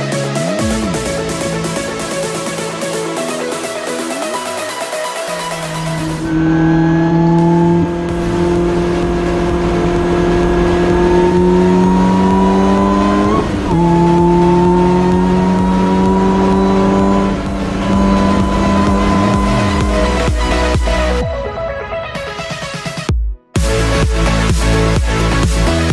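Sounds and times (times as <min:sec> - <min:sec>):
race car engine accelerating: 0:00.4 - 0:21.2.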